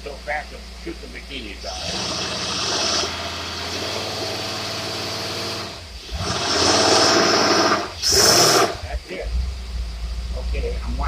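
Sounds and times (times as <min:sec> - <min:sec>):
marine engine revving: 0:01.6 - 0:09.6.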